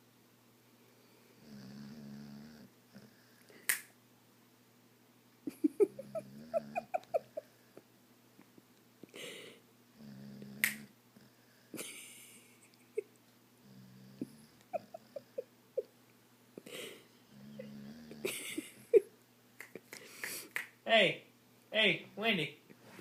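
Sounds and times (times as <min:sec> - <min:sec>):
dog snoring: 0:01.4 - 0:03.4, 0:09.9 - 0:11.6, 0:13.6 - 0:15.2, 0:17.3 - 0:18.3.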